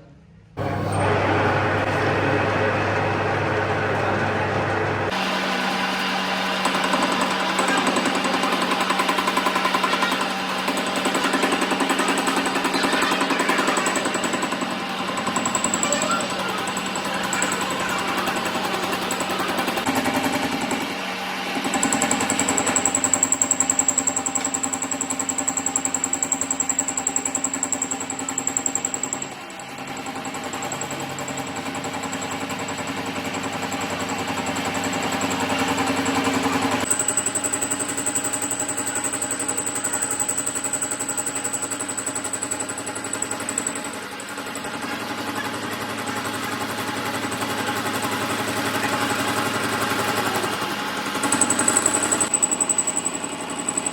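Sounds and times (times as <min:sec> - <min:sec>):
machine humming: 0:00.6 - 0:28.3.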